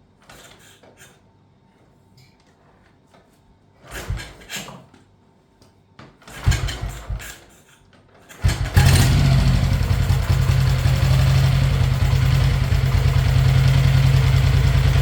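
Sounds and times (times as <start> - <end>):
motorcycle engine kickstarting: 6.3 - 7.4, 8.3 - 15.0
engine running steadily: 8.7 - 15.0.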